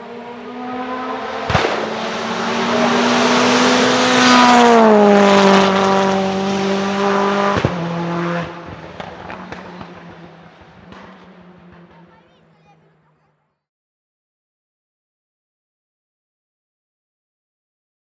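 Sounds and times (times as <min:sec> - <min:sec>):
sharp engine bangs: 0:00.0 - 0:13.1
race car engine passing by: 0:00.0 - 0:13.3.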